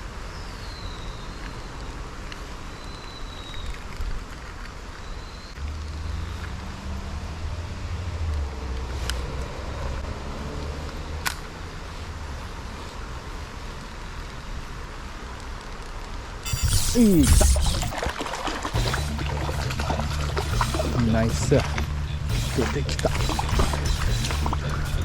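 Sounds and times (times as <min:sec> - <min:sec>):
sharp clicks: 0:16.4 - 0:25.0
low rumble: 0:18.8 - 0:25.0.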